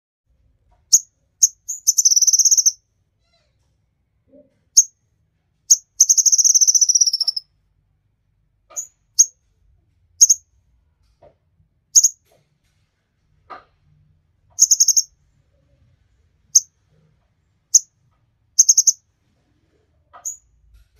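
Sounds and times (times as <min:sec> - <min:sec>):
bird rapid trills: 0:00.9 - 0:02.8, 0:05.7 - 0:07.4, 0:14.6 - 0:15.1, 0:18.6 - 0:19.0
bird high chips: 0:01.4 - 0:02.8, 0:05.7 - 0:07.4, 0:14.6 - 0:15.1, 0:18.6 - 0:19.0.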